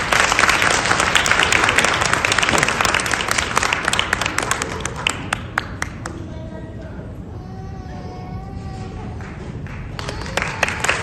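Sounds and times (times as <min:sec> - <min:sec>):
audience applauding: 0:00.0 - 0:06.0, 0:09.2 - 0:11.0.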